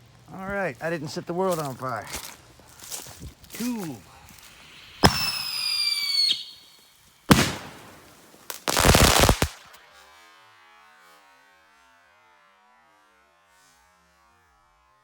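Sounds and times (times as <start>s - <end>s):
firework crack: 3.6s - 9.8s
firework falling whistle: 4.6s - 8.0s, 8.7s - 9.6s
firework bangs: 4.6s - 9.7s.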